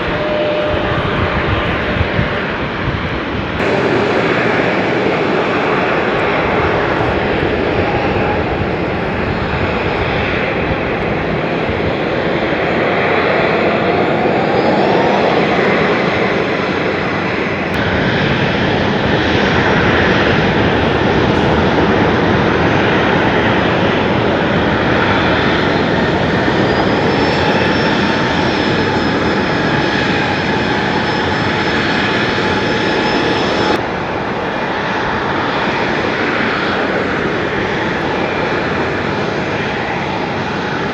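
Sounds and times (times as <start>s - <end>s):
airliner engines roaring: 0.0s - 40.9s.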